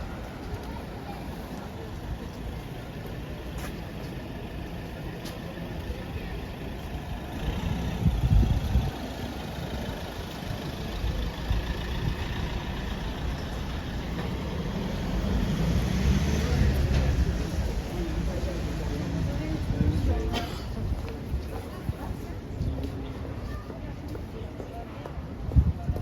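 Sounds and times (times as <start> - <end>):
traffic engines rumbling: 0.0 - 26.0
vehicle passing close: 11.4 - 19.7.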